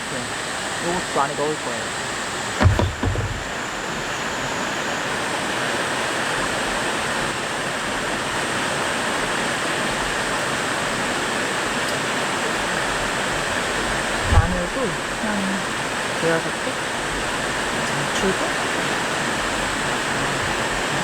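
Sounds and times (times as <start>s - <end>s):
low knock: 2.6s - 3.5s.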